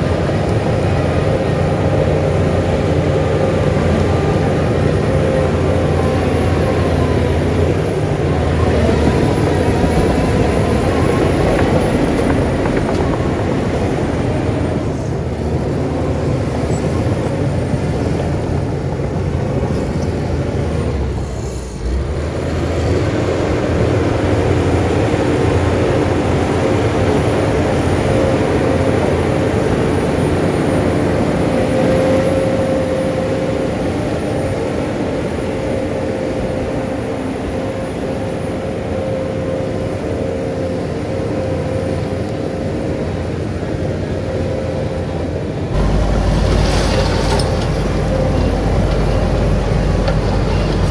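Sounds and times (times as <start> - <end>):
heavy machinery diesel engine running: 0.0 - 50.9.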